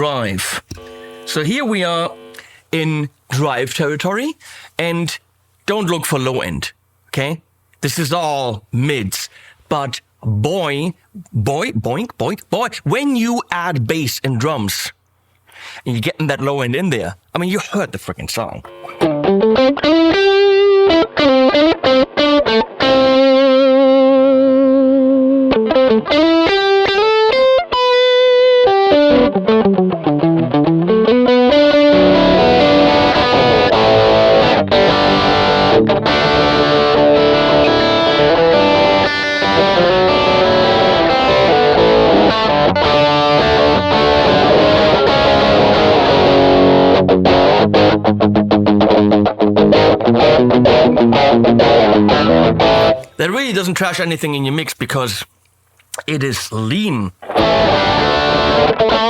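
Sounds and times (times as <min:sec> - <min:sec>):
electric guitar solo: 0:18.6 - 0:53.1, 0:57.2 - 0:59.0.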